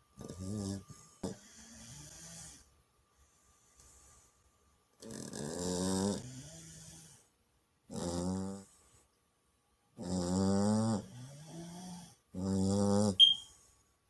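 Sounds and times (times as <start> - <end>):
puppy snoring: 0.2 - 2.7, 5.0 - 7.3, 7.9 - 8.8, 10.0 - 13.4
brief high chirp: 13.2 - 13.4.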